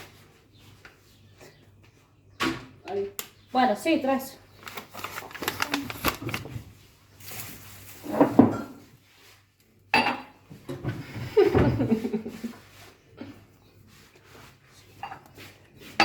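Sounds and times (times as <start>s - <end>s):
kitchenware clicking and clattering: 8.0s - 8.9s
dishes knocking and rattling: 8.1s - 8.8s.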